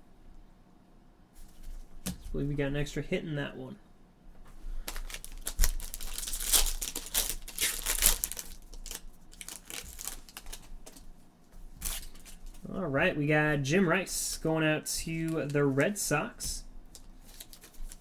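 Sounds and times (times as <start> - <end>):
plastic wrapper crinkling and tearing: 4.8 - 11.2, 11.8 - 12.5, 15.1 - 15.8, 16.9 - 18.0.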